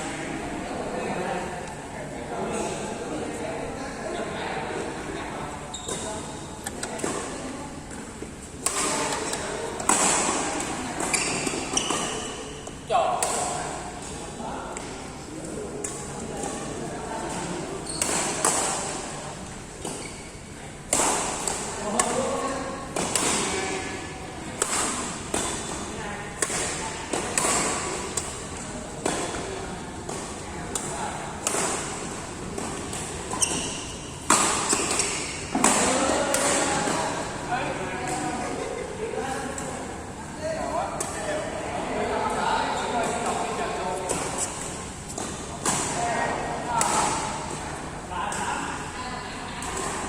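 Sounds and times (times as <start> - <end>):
racket striking shuttlecock: 24.6 - 25.8, 26.4 - 29.5, 32.6 - 37.0.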